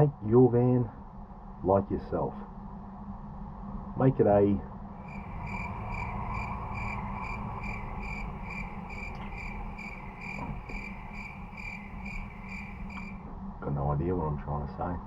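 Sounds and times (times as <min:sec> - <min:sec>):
cricket chirping: 0:05.0 - 0:13.2.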